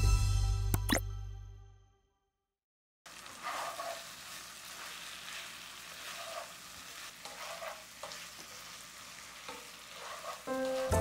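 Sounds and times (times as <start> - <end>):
scrapes in frying pan: 3.1 - 10.9
chicken sizzling in frying pan: 3.1 - 11.0.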